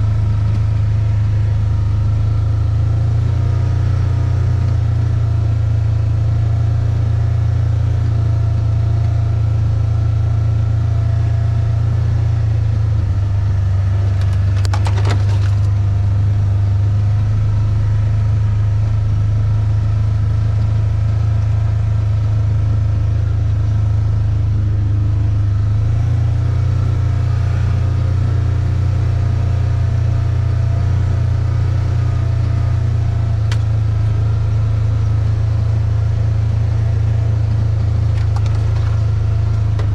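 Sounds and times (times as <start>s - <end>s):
vehicle engine rumbling: 0.0s - 39.9s
brief rattle: 14.1s - 15.8s.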